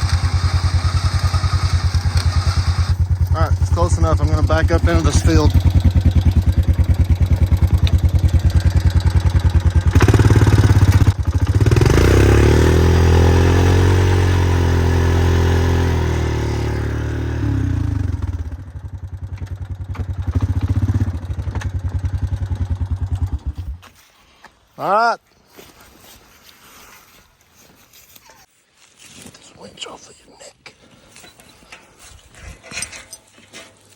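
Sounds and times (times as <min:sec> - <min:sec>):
small vehicle engine revving: 0:00.0 - 0:23.7.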